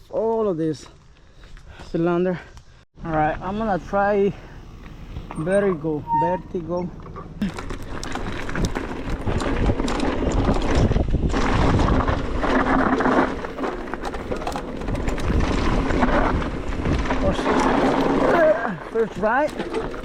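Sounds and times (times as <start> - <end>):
bike tyres on dirt: 0.0 - 20.0
bike knocks and rattles: 6.9 - 20.0
wind on microphone: 8.2 - 13.1.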